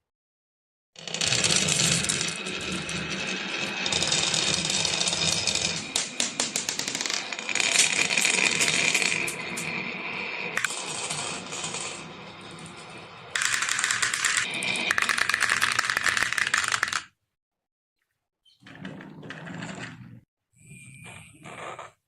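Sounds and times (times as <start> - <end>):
marbles clattering down a run: 1.1 - 9.8, 10.6 - 17.1.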